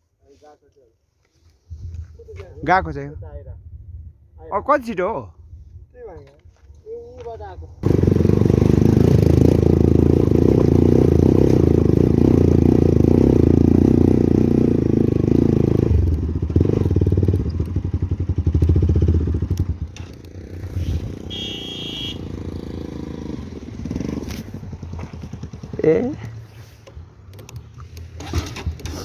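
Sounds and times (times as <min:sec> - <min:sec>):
motorcycle engine running: 0:07.8 - 0:27.1.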